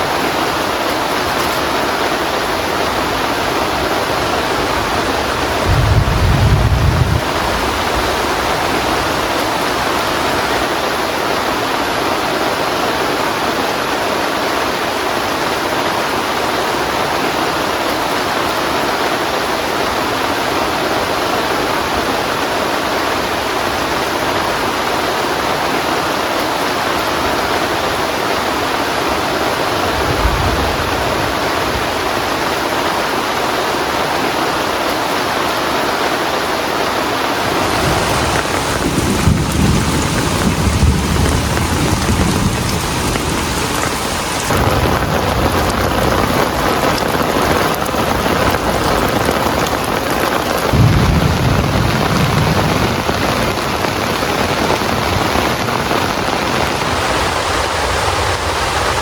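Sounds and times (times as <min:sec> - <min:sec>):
heavy rain falling: 0:00.0 - 0:59.0
rolls of thunder: 0:05.6 - 0:08.8, 0:29.8 - 0:32.2, 0:37.8 - 0:43.7, 0:50.6 - 0:55.3.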